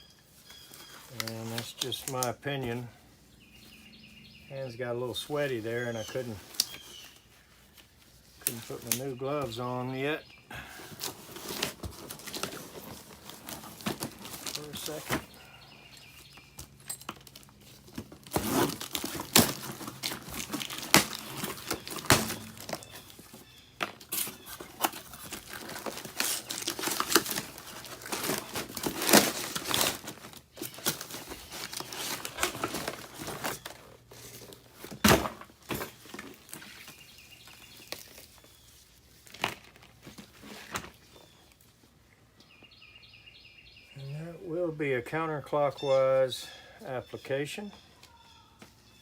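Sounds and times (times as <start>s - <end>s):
crinkly material crackling and rustling: 0.0s - 9.9s, 10.8s - 42.0s.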